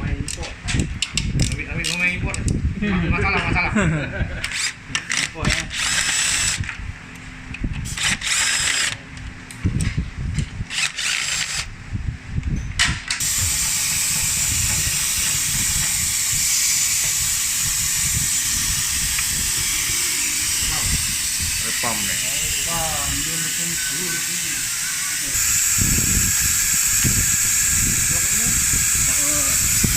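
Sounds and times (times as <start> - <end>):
power tool bursts: 4.5 - 6.6, 7.9 - 9.0, 10.7 - 11.7, 13.2 - 29.9.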